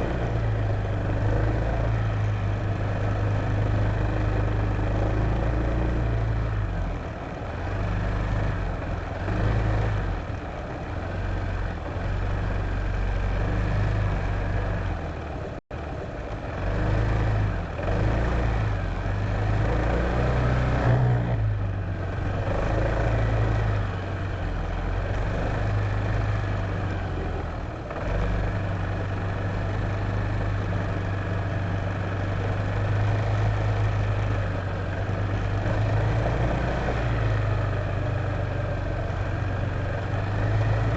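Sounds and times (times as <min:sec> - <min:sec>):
scooter engine running: 0:00.0 - 0:20.6, 0:21.3 - 0:40.9.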